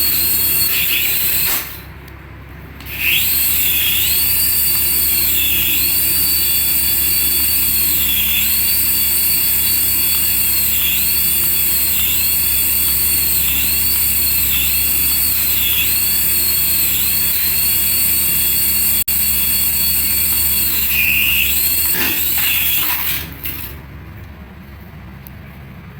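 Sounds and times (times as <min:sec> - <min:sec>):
toy warbling electronic tone: 0:09.6 - 0:23.7.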